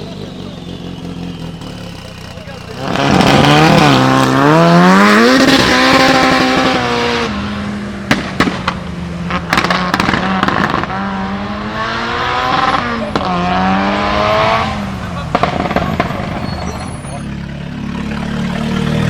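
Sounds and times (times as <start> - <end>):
car engine revving: 0.0 - 19.0
exhaust bangs and pops: 2.6 - 7.3, 8.0 - 11.4, 12.4 - 17.2.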